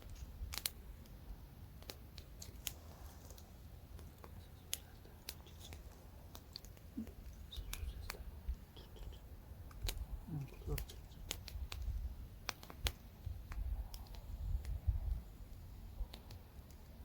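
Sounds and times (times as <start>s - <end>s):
campfire crackling: 0.0s - 17.0s
low wind rumble: 0.0s - 17.0s.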